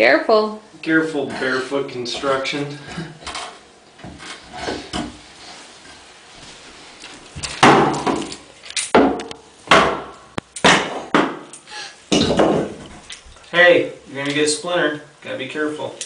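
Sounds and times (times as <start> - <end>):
hammer striking wooden board: 7.6 - 8.3, 8.9 - 11.5, 12.1 - 12.8.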